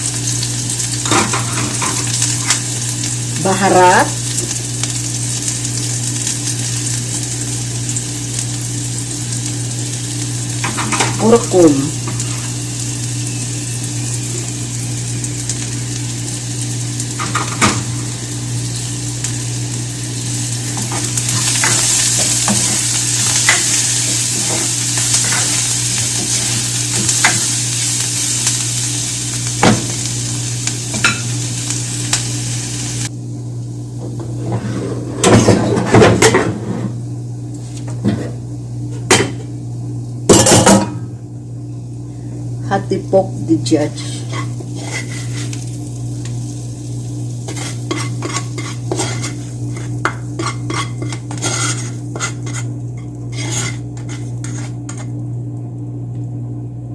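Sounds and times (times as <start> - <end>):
food sizzling in a pot: 0.0 - 56.4
spoon scraping and clanking on pot: 44.2 - 45.6, 47.5 - 55.1.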